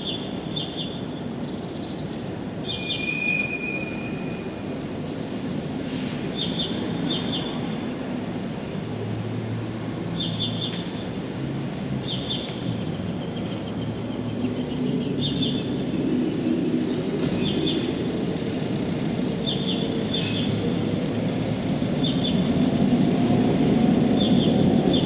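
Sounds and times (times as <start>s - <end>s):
songbird chirping: 0.0s - 4.7s.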